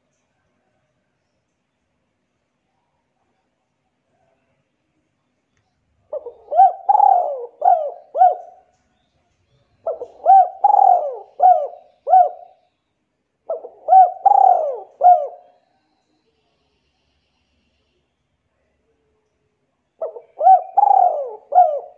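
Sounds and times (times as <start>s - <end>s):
bird calling: 6.1s - 8.6s, 9.8s - 12.6s, 13.5s - 15.6s, 20.0s - 21.9s.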